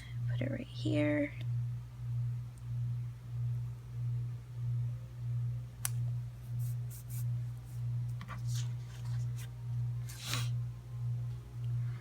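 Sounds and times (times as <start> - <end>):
low pulsing hum: 0.0 - 12.0
paper rustling: 8.2 - 10.5.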